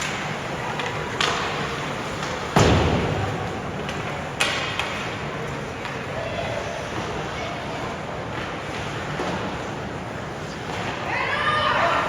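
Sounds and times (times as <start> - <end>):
hockey stick knocking puck: 0.8 - 5.1
loud thud echoing in arena: 2.5 - 4.8.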